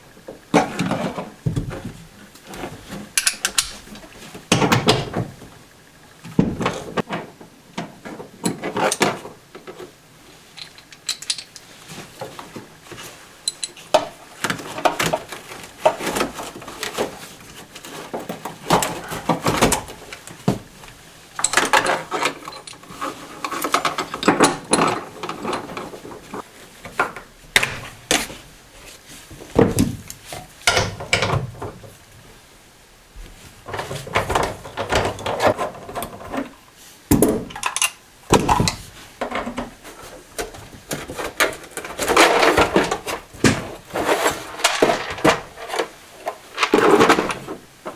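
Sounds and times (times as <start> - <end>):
rustling: 38.3 - 47.9.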